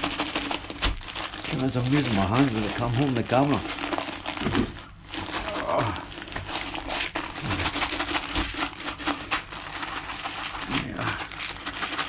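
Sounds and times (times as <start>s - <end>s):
loose seed rattling: 0.0s - 4.5s
seed bags rustling: 0.0s - 12.0s.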